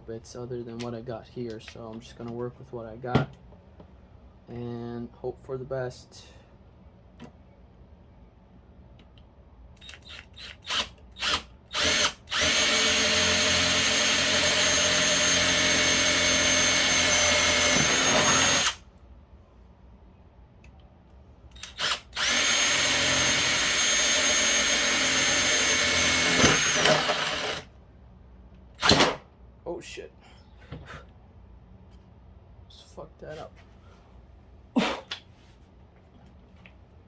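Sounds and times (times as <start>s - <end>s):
electric drill boring into plastic: 9.8s - 18.8s, 21.6s - 27.7s, 28.8s - 29.1s.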